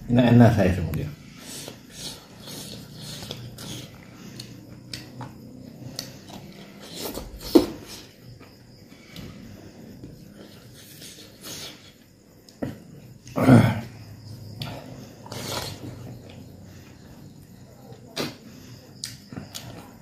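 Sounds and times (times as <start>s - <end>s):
man chewing and smacking: 1.5s - 8.6s, 19.0s - 19.8s.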